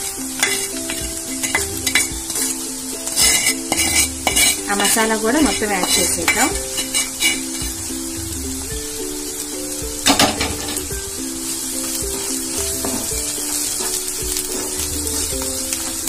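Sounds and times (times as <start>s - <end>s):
background music: 0.0s - 16.0s
food sizzling in hot oil: 0.0s - 16.0s
wooden spatula stirring: 0.4s - 8.6s.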